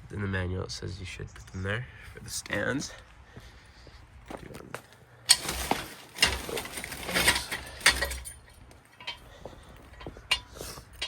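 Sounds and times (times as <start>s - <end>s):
metal clinks and scrapes: 5.3s - 11.0s.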